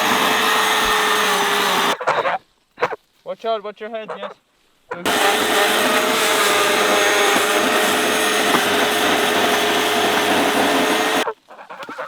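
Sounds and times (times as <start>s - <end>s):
chainsaw cutting: 0.0s - 2.0s, 5.1s - 11.3s.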